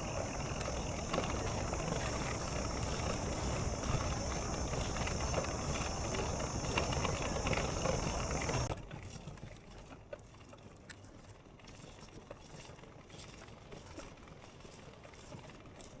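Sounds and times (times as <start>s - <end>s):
bicycle tyre noise and rattling: 0.0s - 8.7s
high-pitched hiss: 0.0s - 8.7s.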